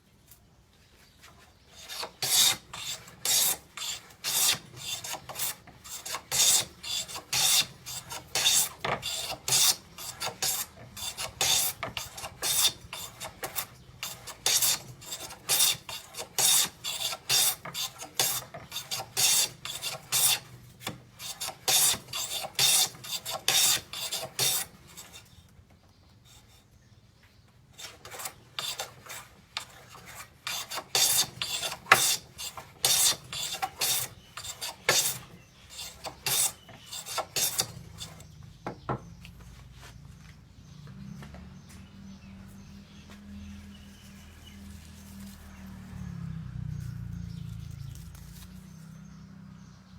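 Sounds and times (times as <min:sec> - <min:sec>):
hand plane rasping on wood: 0:01.7 - 0:25.3, 0:27.8 - 0:38.4.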